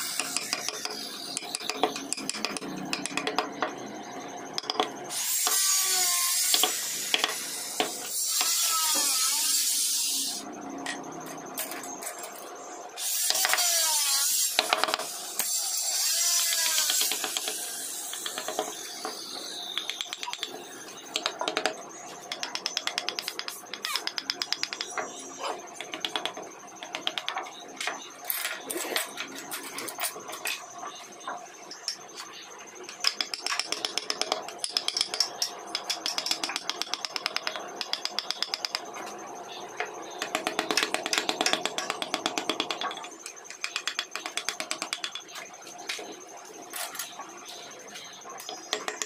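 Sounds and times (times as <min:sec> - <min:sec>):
carving tool tapping on wood: 0:00.2 - 0:03.7, 0:04.6 - 0:04.9, 0:19.7 - 0:20.5, 0:21.1 - 0:25.1, 0:25.8 - 0:27.4, 0:33.0 - 0:38.9, 0:40.2 - 0:45.2.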